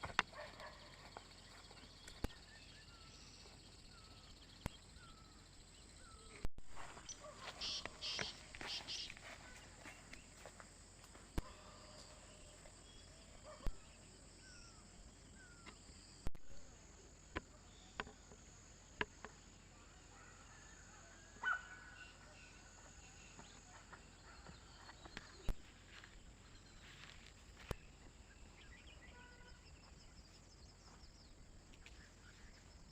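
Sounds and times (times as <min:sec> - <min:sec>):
insect drone: 0:00.0 - 0:09.4
bird chirps: 0:00.0 - 0:10.5.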